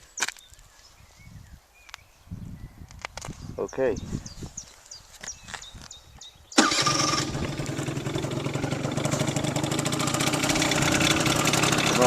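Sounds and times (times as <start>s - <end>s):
scooter engine idling: 6.6s - 12.0s.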